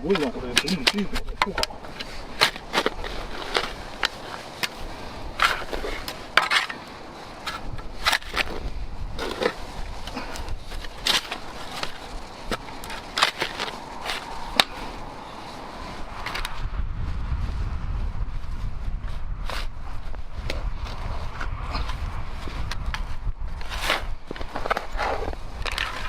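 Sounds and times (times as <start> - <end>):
scraping and crackling of outdoor work: 0.0 - 26.0.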